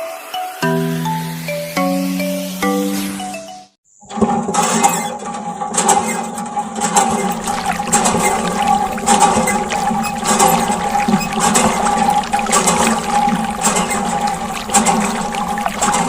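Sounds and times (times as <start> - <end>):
background music: 0.0 - 3.7
water pump motor hum: 6.7 - 16.0
water gushing and splashing: 6.8 - 16.0.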